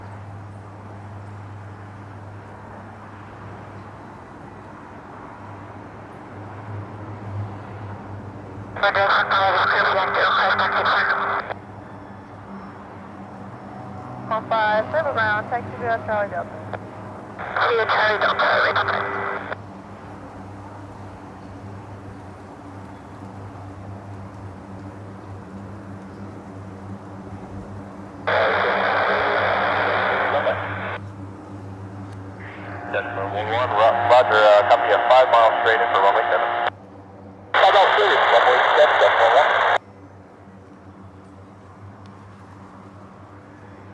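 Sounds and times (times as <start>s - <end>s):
distant aircraft engines droning: 0.0s - 43.9s
background noise haze: 8.8s - 11.6s, 14.3s - 36.7s, 37.6s - 39.8s.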